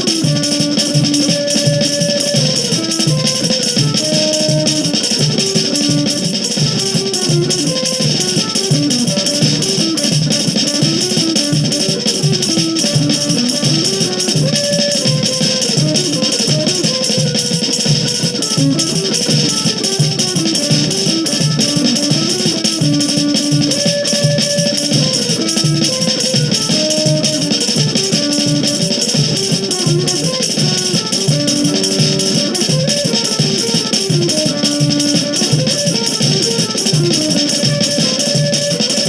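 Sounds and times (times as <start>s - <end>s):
mandolin melody: 0.0s - 39.0s
steady percussion beat: 0.0s - 39.0s.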